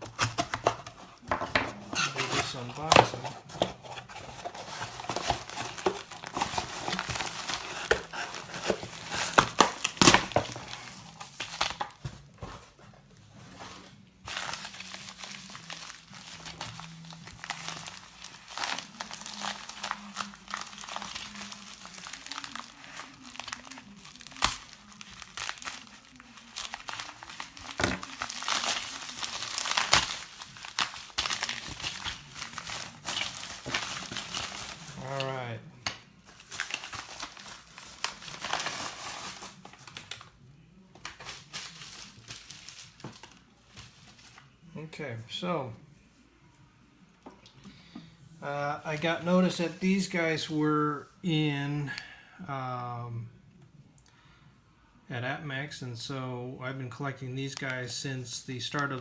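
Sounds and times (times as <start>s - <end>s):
packing material crinkling and tearing: 0.0s - 12.4s, 13.6s - 35.6s, 36.2s - 40.3s, 41.0s - 44.5s.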